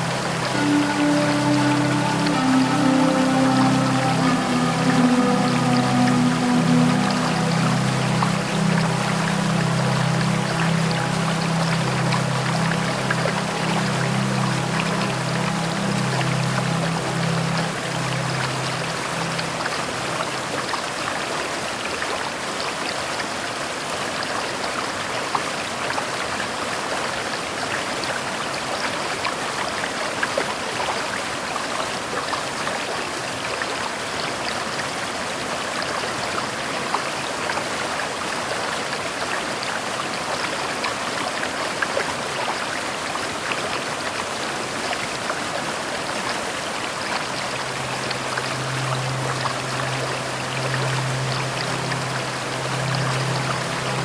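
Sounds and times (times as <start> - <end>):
low steady hum: 0.0 - 20.9, 47.0 - 54.0
steady rain pattering: 0.0 - 21.8, 33.1 - 54.0.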